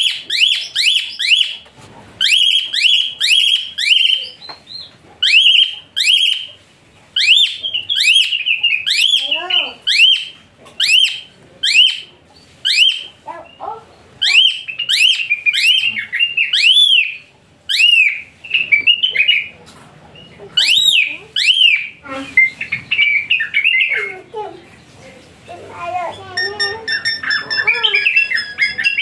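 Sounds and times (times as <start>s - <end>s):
starling jumbled chatter: 7.2s - 29.0s
starling shrill notes: 26.2s - 29.0s.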